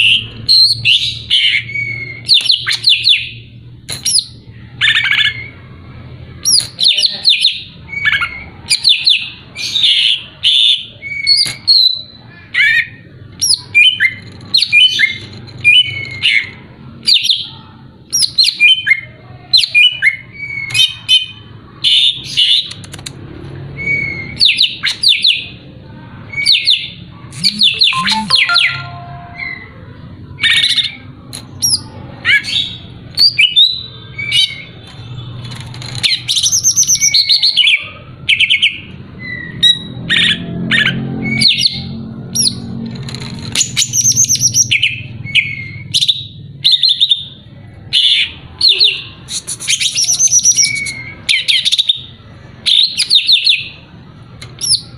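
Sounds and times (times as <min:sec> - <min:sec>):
bird chirping and whistling: 0:00.0 - 0:03.3, 0:27.4 - 0:29.6, 0:49.4 - 0:52.0.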